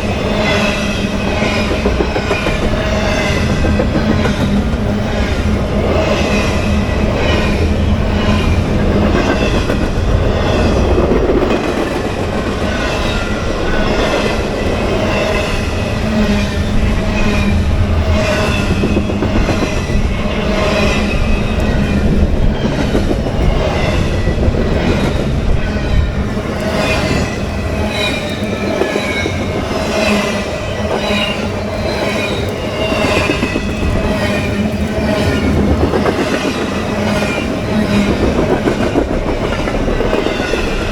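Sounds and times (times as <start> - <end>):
freight train rumble: 0.0 - 40.9
train wheels clicking over rail joints: 0.0 - 40.9
wheel squeal: 12.7 - 40.9.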